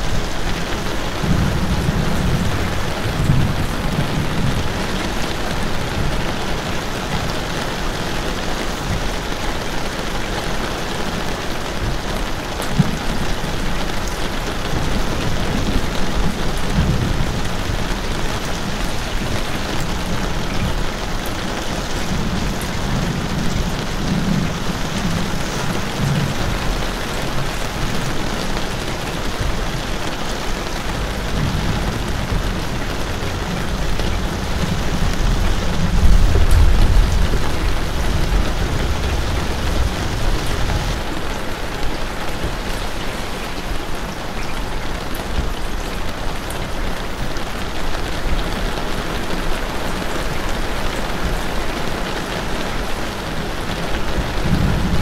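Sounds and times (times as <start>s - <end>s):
steady rain falling: 0.0s - 55.0s
low rumbles: 0.1s - 7.3s, 14.8s - 44.2s.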